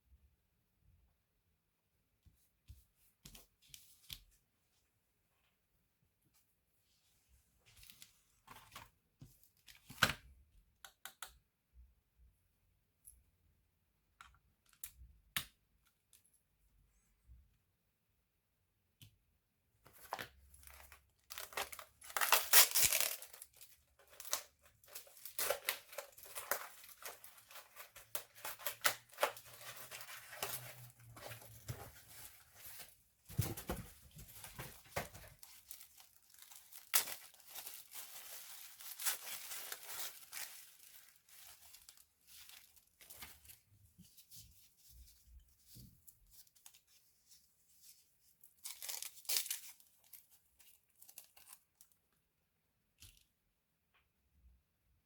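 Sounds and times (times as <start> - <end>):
hands rustling laptop parts: 19.9 - 51.7.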